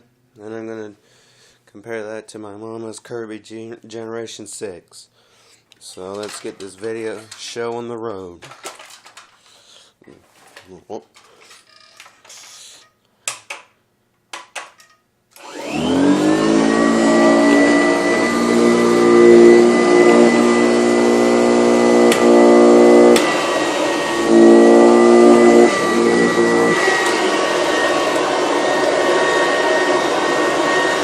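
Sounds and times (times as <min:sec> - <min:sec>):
vacuum cleaner motor whining: 0:15.4 - 0:31.0.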